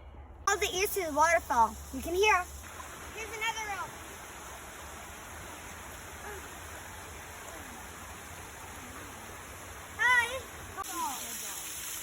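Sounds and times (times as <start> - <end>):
waterfall rushing: 0.6 - 12.0.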